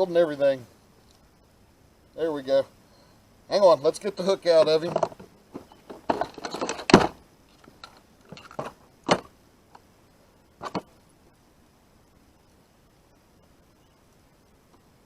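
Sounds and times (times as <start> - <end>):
rustling: 3.8 - 11.4
handling clicks and knocks: 4.5 - 9.3, 10.6 - 10.9.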